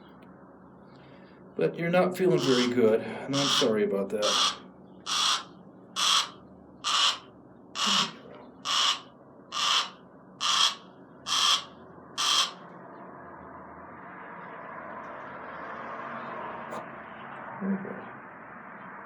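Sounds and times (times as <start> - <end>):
barn owl hissing: 2.4 - 12.6.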